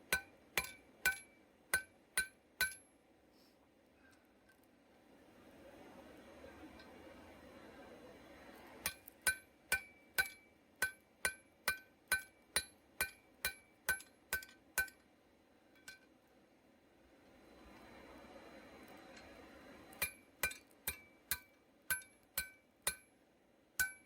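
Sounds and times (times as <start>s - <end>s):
hammer striking steel on anvil: 0.0s - 2.9s, 8.8s - 15.0s, 20.0s - 23.1s, 23.8s - 24.0s.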